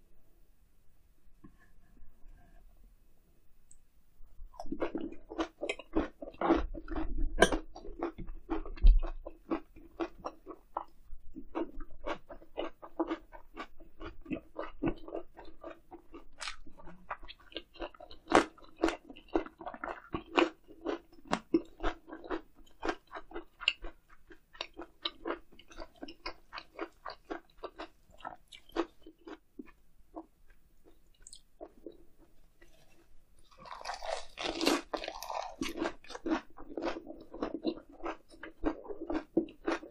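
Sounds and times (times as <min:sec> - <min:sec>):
wet chewing clicks: 0:04.6 - 0:32.0.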